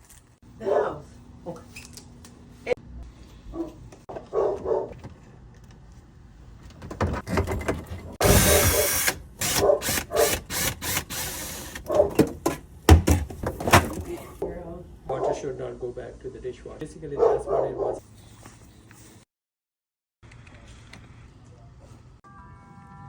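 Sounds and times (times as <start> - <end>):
dog barking: 0.6 - 1.0, 3.5 - 5.0, 9.6 - 10.3, 11.9 - 12.2, 17.2 - 18.0.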